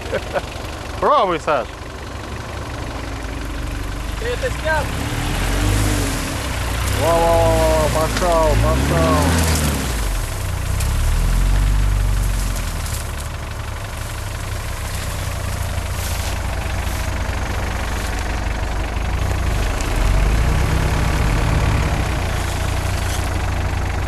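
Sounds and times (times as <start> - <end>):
suv engine rumbling under load: 0.0 - 24.0.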